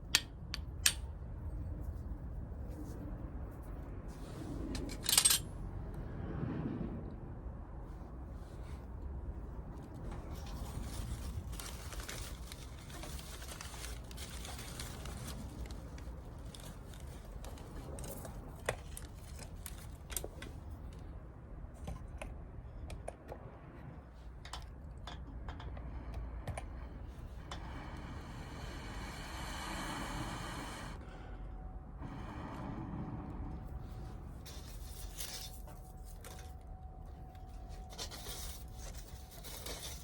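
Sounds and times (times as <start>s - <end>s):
low rumble: 1.0s - 19.9s, 25.6s - 38.0s.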